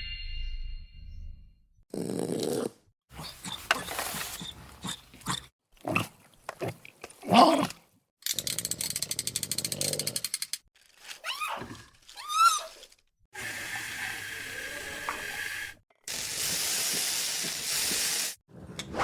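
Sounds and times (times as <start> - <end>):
dog growling and whining: 1.9 - 5.5.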